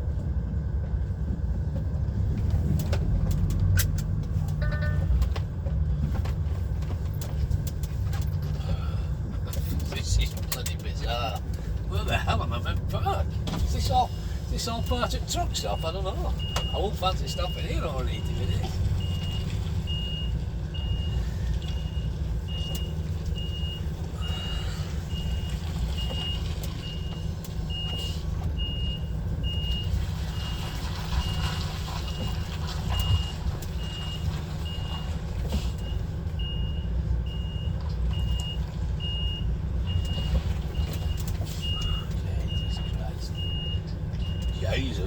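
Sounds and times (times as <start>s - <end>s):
diesel truck engine running: 0.0s - 45.0s
reversing alarm beeping: 14.6s - 30.6s, 32.1s - 45.0s.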